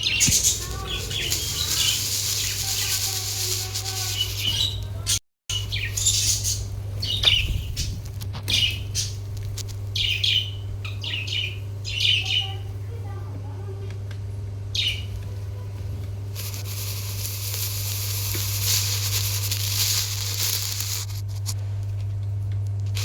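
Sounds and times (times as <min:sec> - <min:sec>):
budgies chirping and chattering: 0:00.0 - 0:09.2, 0:10.0 - 0:12.8, 0:14.7 - 0:15.2
wing flutter: 0:00.2 - 0:04.8, 0:16.4 - 0:21.6.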